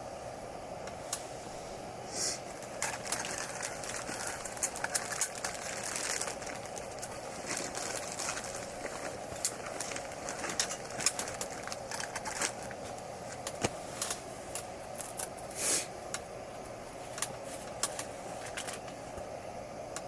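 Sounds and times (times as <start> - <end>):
steady hiss: 0.0 - 20.0
campfire crackling and popping: 2.4 - 15.4.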